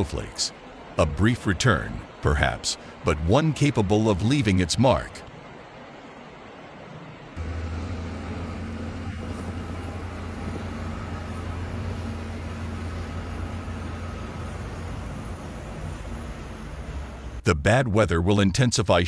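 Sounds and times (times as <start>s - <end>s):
vehicle engine running: 7.4s - 17.4s.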